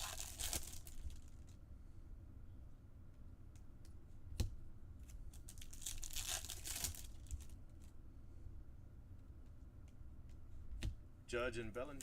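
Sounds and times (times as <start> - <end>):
wrapper tearing and crinkling: 0.0 - 1.4, 5.3 - 7.5.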